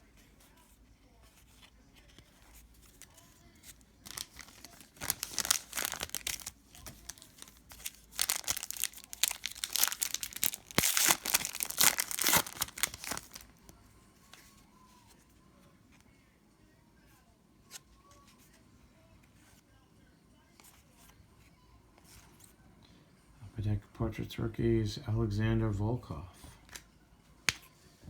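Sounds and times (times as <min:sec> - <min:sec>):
foil wrapper crinkling and tearing: 0:02.8 - 0:13.6.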